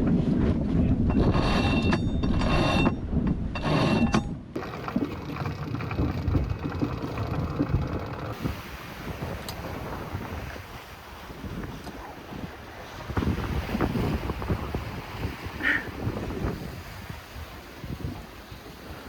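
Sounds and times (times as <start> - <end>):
water noise: 0.0 - 19.0
wind: 0.0 - 19.0
sheet winch ratcheting and squealing: 1.2 - 3.0, 3.6 - 8.4.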